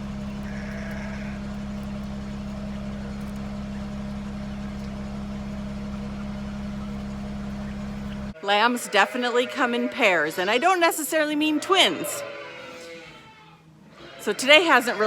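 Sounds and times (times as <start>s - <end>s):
vehicle engine droning: 0.0s - 8.4s.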